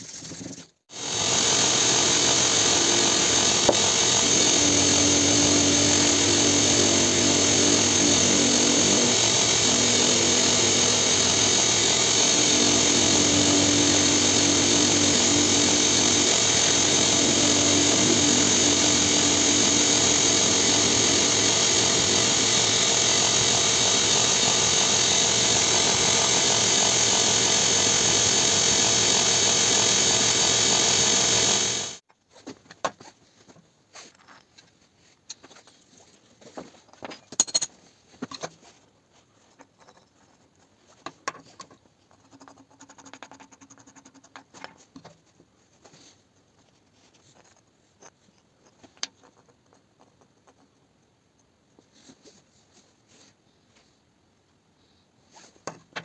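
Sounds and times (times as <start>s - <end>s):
power tool hissing: 0.9s - 32.0s.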